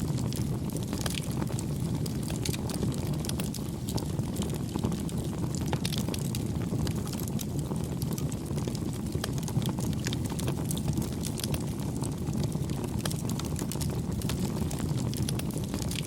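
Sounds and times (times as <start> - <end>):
campfire flames rushing: 0.0 - 16.0
fire crackling and snapping: 0.0 - 16.0.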